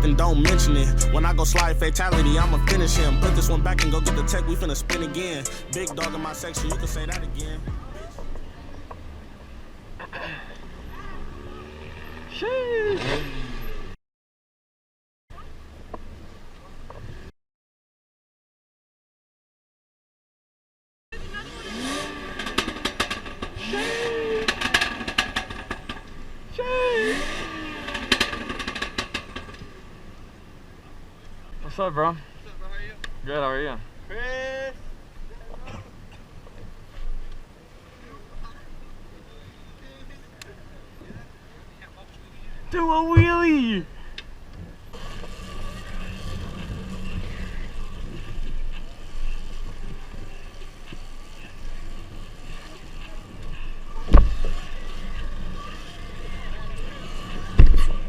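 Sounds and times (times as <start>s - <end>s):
car engine revving: 0.0s - 8.4s, 10.6s - 14.0s, 21.2s - 29.9s, 44.9s - 58.0s
exhaust pops and crackles: 22.2s - 26.3s, 27.2s - 29.9s, 44.2s - 58.0s.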